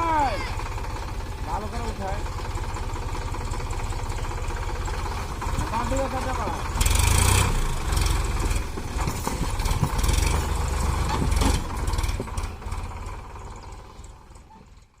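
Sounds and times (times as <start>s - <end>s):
tractor diesel engine chugging: 0.0s - 15.0s.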